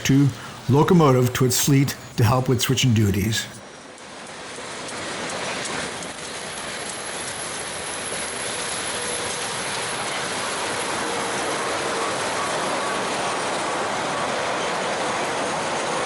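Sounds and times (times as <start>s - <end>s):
train wheels rumbling on rails: 4.2s - 16.0s.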